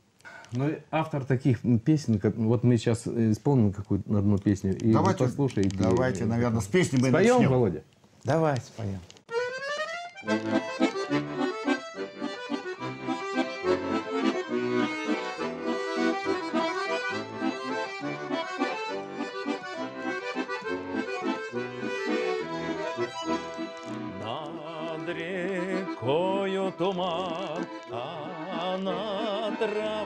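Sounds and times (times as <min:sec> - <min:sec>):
button accordion folk tune: 0:09.3 - 0:30.0.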